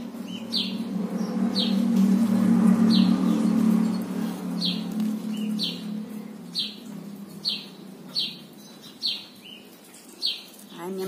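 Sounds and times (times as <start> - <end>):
low steady hum: 0.0 - 10.1.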